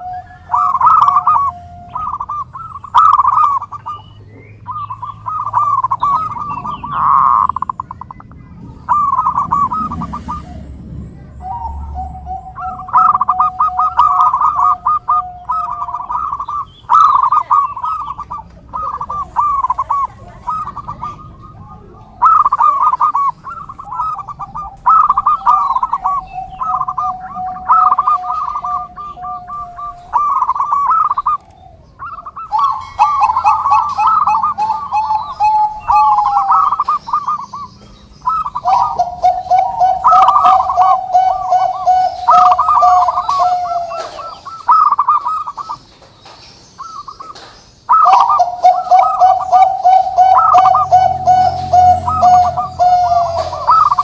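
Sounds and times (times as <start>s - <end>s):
doves cooing: 0.0s - 54.0s.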